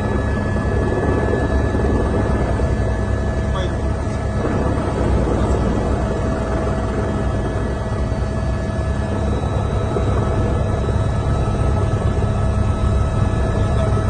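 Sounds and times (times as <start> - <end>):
roar of rushing floodwater: 4.1 - 12.3.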